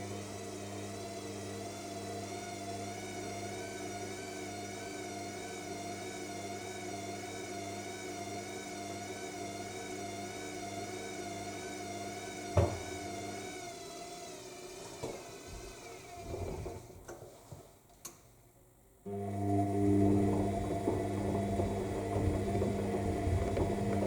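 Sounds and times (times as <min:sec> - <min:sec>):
washing machine spinning: 0:00.0 - 0:17.0, 0:19.1 - 0:24.0
sharp thump: 0:12.6 - 0:12.8.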